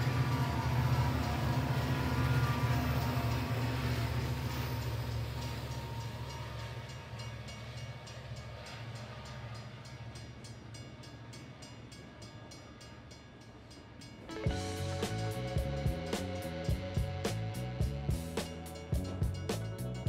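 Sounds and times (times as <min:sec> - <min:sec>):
train rumbling with rhythmic clicking: 0:00.0 - 0:20.0.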